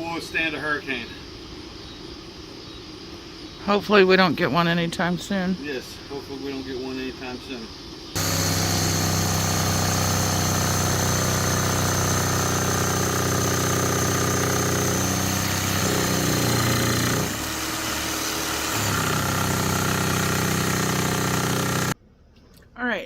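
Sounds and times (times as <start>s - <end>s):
motor humming: 8.2s - 22.0s.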